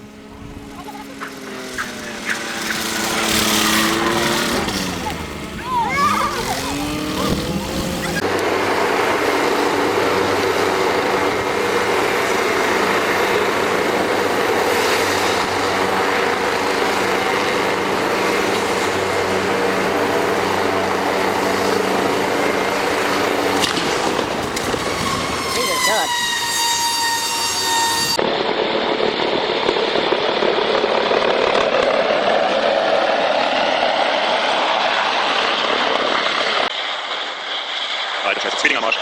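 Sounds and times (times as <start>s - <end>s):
voices: 0.0s - 8.3s, 25.4s - 26.3s
steady engine drone: 0.0s - 39.0s.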